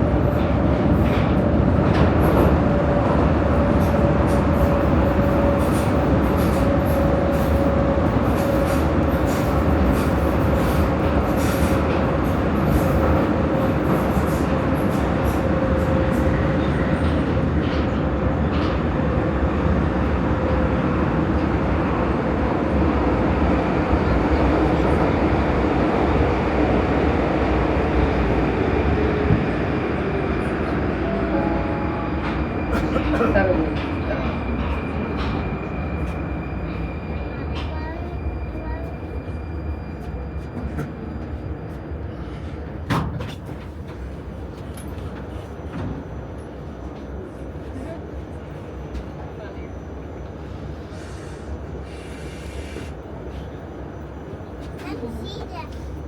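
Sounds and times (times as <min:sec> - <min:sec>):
metro train wheels rumbling: 0:00.0 - 0:56.0.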